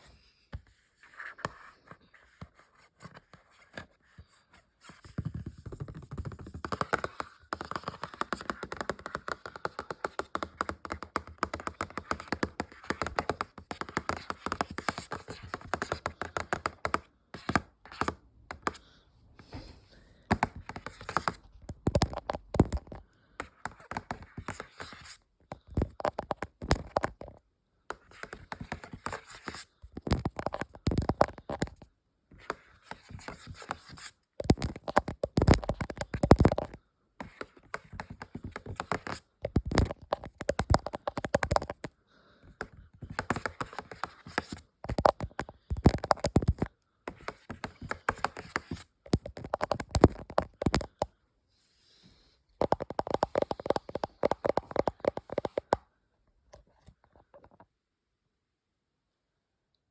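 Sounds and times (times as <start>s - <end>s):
fast tapping on objects: 5.2s - 18.8s, 20.3s - 51.2s, 52.6s - 55.8s.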